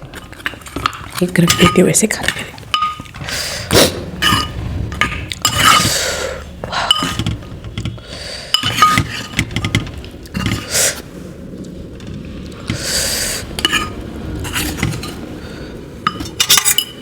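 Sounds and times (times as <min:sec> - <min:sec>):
metal utensils clinking on dishes: 0:00.1 - 0:10.7, 0:16.0 - 0:17.0.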